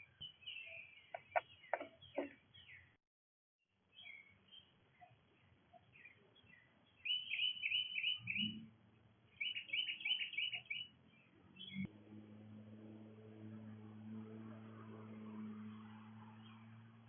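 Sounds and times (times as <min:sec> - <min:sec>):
soft bird chirps: 0:00.0 - 0:03.0, 0:03.9 - 0:08.7, 0:09.3 - 0:11.9
songbird singing: 0:00.0 - 0:03.0, 0:03.9 - 0:11.9.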